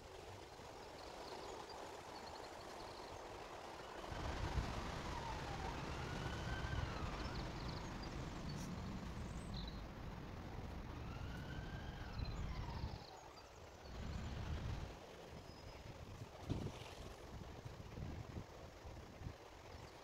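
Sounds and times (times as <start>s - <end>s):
emergency siren wailing: 4.2s - 13.2s
steady low rumble: 4.2s - 20.0s.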